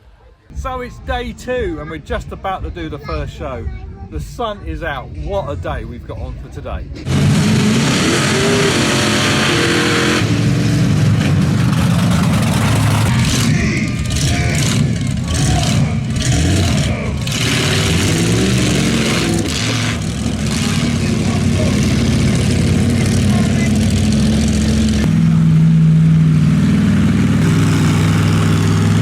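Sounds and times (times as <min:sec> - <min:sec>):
truck engine revving: 0:06.9 - 0:29.0.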